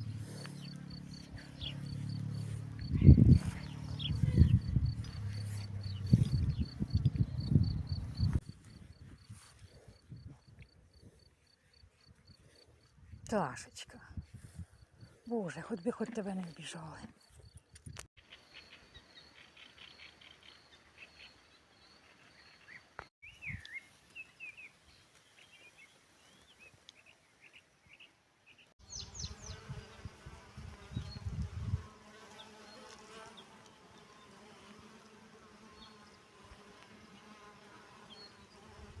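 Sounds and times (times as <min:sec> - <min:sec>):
flying insect buzzing: 0:00.0 - 0:08.4, 0:28.9 - 0:39.0.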